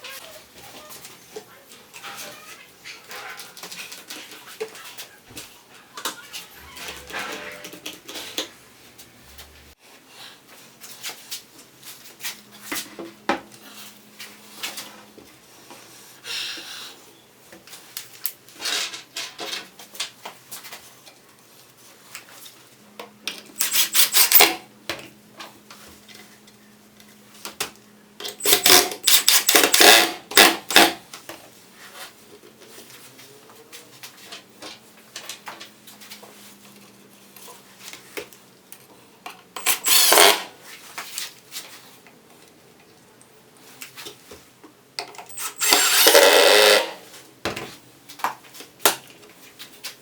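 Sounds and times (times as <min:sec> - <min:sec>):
hard objects clattering and scraping: 0:05.9 - 0:08.6.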